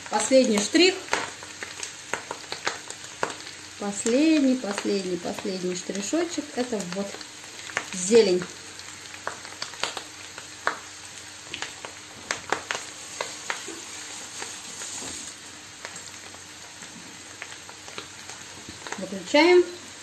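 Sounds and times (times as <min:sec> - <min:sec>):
food sizzling in a frying pan: 0:00.0 - 0:20.0
small pops and crackles: 0:00.4 - 0:13.9, 0:15.8 - 0:19.1.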